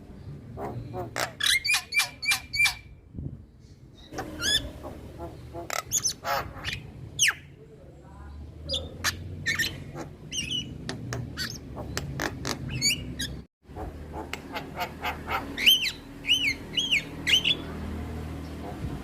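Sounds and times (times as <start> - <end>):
birds whistling and squawking: 0.6 - 3.0, 3.6 - 7.5, 8.7 - 10.8, 11.4 - 13.5, 14.5 - 17.8
low rumble: 3.0 - 7.2.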